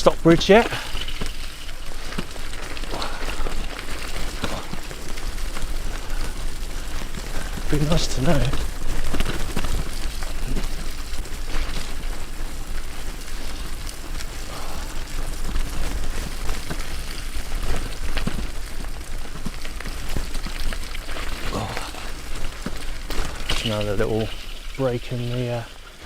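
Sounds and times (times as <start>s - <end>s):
bicycle tyres on rough track: 0.0s - 26.0s.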